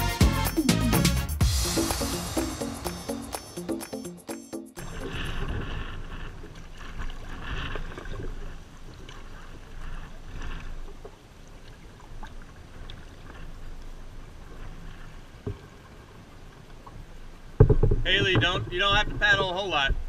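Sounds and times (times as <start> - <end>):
paddle splashing in water: 4.8 - 20.0.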